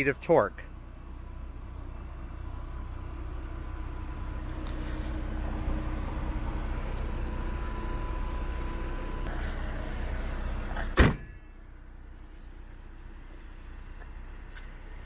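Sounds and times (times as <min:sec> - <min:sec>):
car engine idling: 0:00.0 - 0:15.0
door slam: 0:10.8 - 0:11.4.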